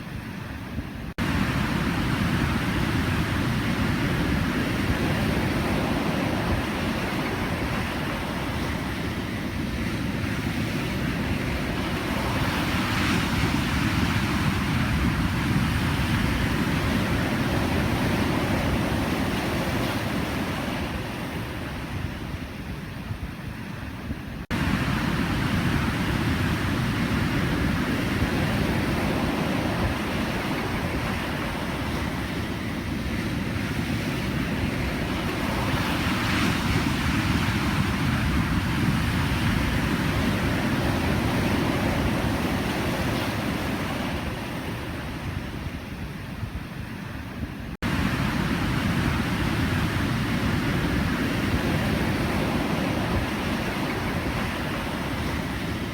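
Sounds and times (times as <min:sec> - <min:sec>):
ocean waves breaking: 0:00.0 - 0:23.0, 0:23.7 - 0:55.9.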